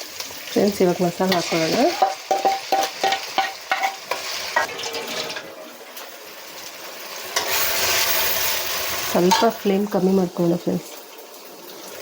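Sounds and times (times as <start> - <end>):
onions sizzling in hot oil: 0.0 - 12.0
spoon clinking against pan: 2.0 - 4.7.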